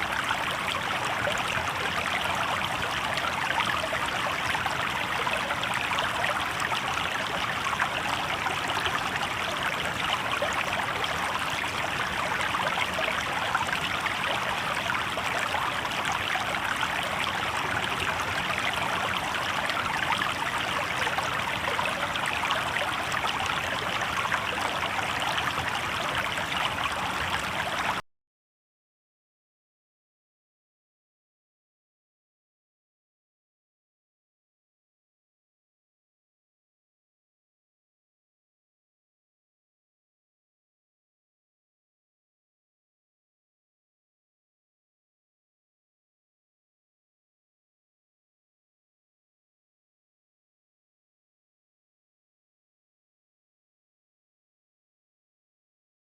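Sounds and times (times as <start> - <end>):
river babbling over stones: 0.0 - 28.0.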